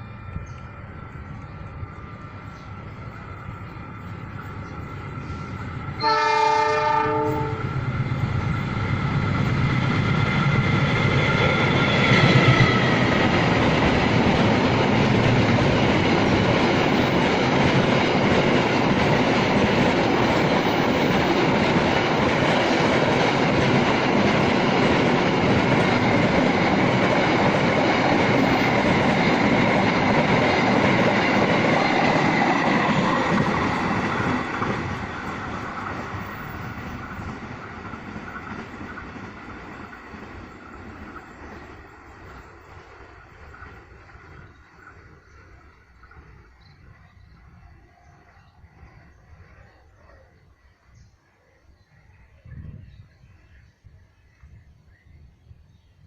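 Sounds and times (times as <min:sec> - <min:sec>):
freight train wheels on rails: 0:00.0 - 0:51.5
locomotive horn: 0:06.0 - 0:07.7.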